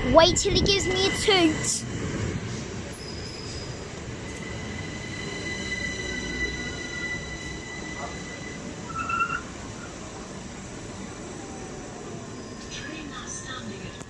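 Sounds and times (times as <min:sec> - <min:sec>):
train high whines: 0:00.0 - 0:14.0
train rumble: 0:00.0 - 0:14.0
brake squeal: 0:02.9 - 0:10.0.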